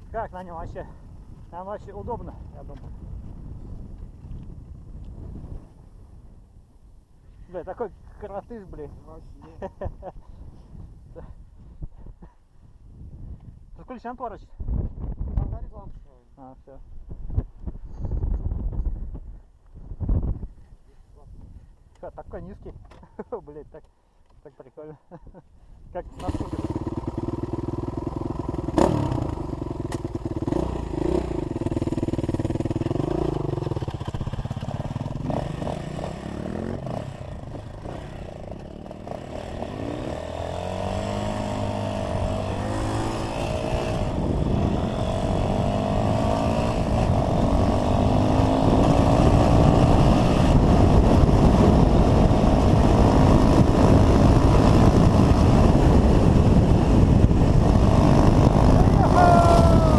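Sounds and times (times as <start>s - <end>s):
dirt bike engine running: 26.2s - 59.9s.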